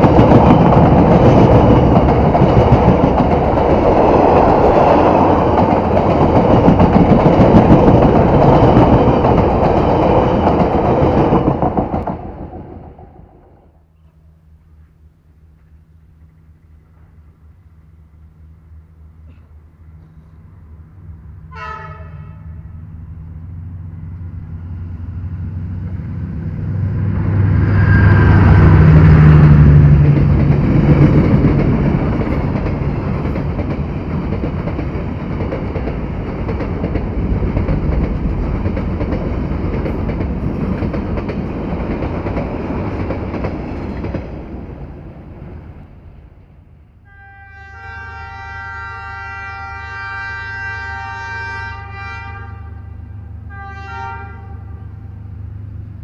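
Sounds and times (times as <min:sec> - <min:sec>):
passenger coaches running noise: 0:00.0 - 0:13.4
diesel locomotive hum: 0:00.0 - 0:56.0
train horn blast: 0:21.5 - 0:22.9, 0:47.0 - 0:55.2.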